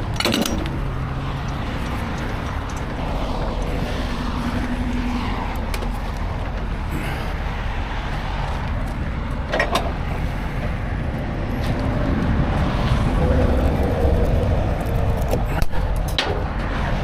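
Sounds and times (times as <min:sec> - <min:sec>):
heavy truck engine running: 0:00.0 - 0:17.0
road noise: 0:00.0 - 0:17.0
metal clank: 0:00.1 - 0:01.6.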